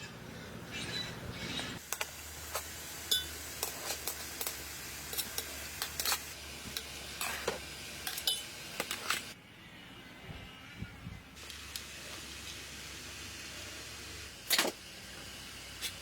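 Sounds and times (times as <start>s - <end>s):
steady hiss: 1.8s - 9.4s, 11.4s - 16.0s
metal utensils clinking on a pot: 3.1s - 3.4s, 6.8s - 9.2s.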